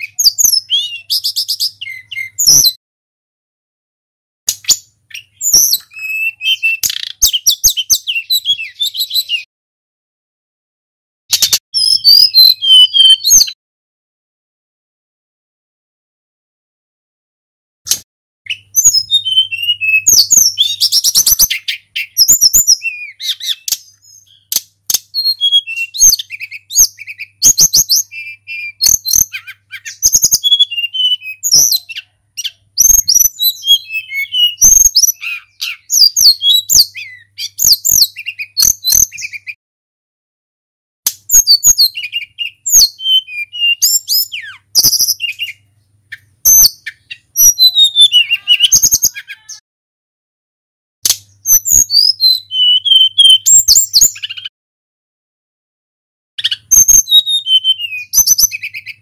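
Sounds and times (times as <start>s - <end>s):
flycatcher whistled song: 0.0s - 2.8s, 4.6s - 9.5s, 11.3s - 13.6s, 18.5s - 39.6s, 41.1s - 45.6s, 46.4s - 49.2s, 51.1s - 54.5s, 56.4s - 59.0s.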